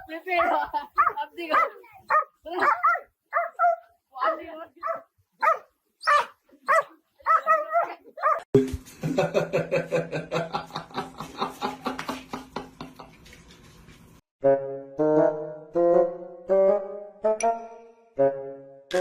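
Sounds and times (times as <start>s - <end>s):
dog barking: 0.0s - 8.5s.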